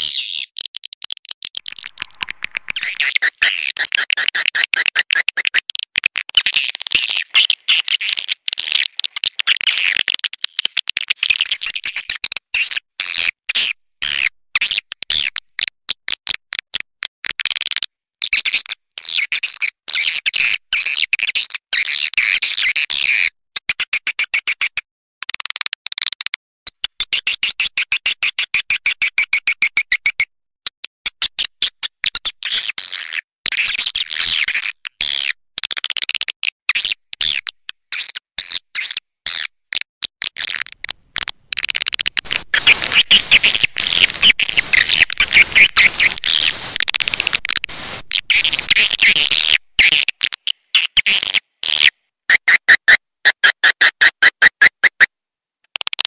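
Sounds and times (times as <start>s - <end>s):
high-pitched chattering bird chirps: 0.0s - 15.3s, 40.4s - 55.1s.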